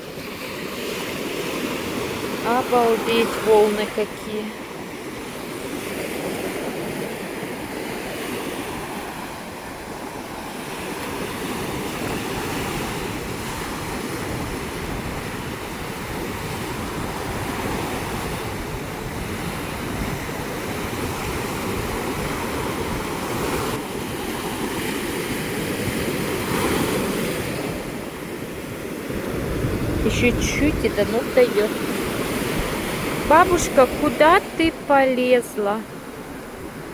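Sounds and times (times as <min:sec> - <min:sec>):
sea surf breaking: 0:00.0 - 0:36.9
wind on microphone: 0:09.8 - 0:34.9.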